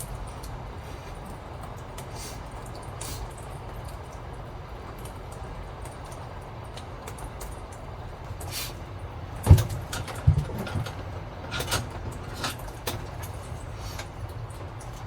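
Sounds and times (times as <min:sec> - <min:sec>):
rain hits: 0:00.0 - 0:15.0
wind low rumble: 0:03.5 - 0:15.0
heavy thumps: 0:09.4 - 0:11.0.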